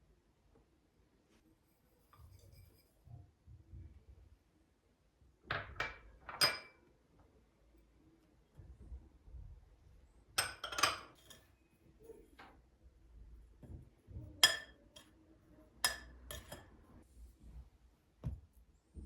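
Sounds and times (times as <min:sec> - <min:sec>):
dishes and utensils clinking: 0:05.5 - 0:06.8, 0:10.4 - 0:11.6, 0:14.4 - 0:15.2, 0:15.8 - 0:16.8.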